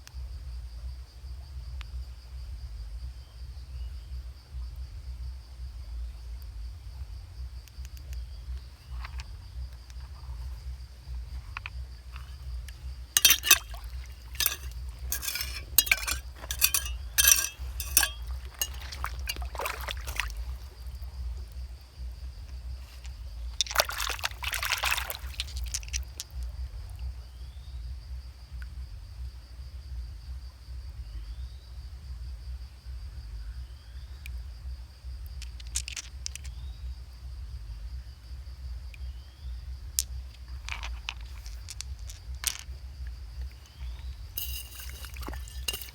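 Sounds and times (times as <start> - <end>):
high insect drone: 0.1 - 45.9
stones clinking together: 11.4 - 21.3, 22.8 - 26.5, 35.4 - 36.6, 40.0 - 42.8, 43.4 - 45.9.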